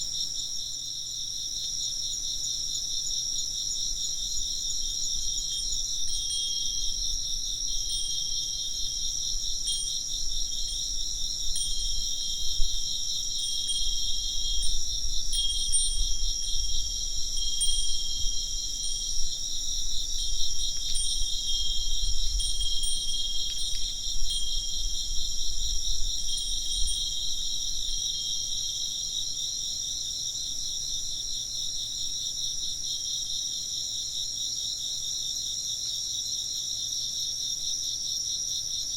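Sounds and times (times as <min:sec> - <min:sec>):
insects chirping: 0:00.0 - 0:38.9
wind bell tinkling: 0:05.4 - 0:28.6.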